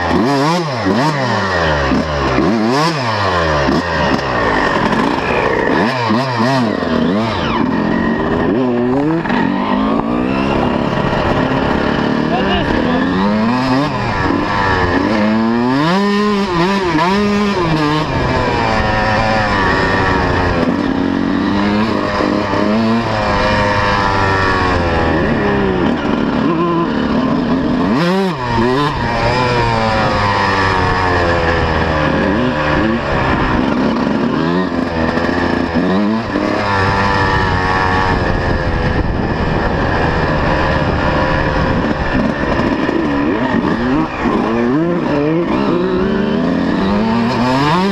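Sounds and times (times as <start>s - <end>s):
two-stroke motocross bike engine revving: 0.0s - 47.9s.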